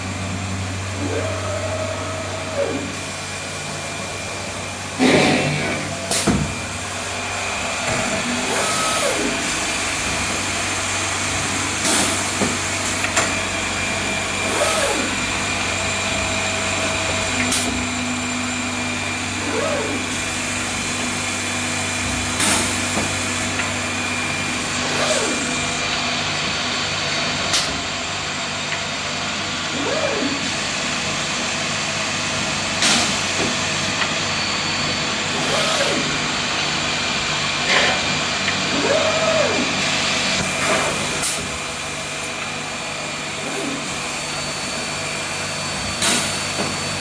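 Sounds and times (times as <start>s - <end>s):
machine whines: 0.0s - 47.0s
machine whirring drone: 0.0s - 47.0s.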